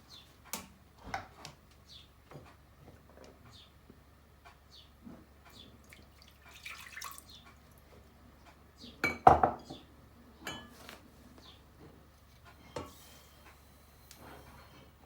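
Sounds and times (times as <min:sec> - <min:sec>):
kitchenware clattering: 0:09.0 - 0:09.8, 0:10.4 - 0:10.9.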